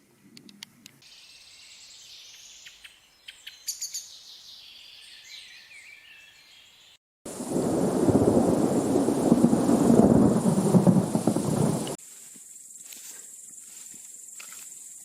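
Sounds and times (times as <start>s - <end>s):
rain rushing: 7.3s - 12.0s.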